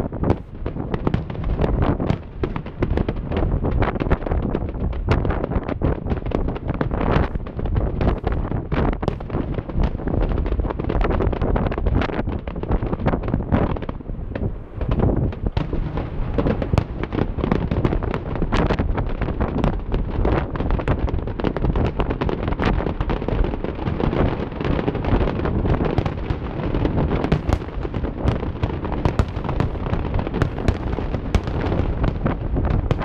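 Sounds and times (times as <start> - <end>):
fireworks bangs and crackles: 0.0 - 33.0.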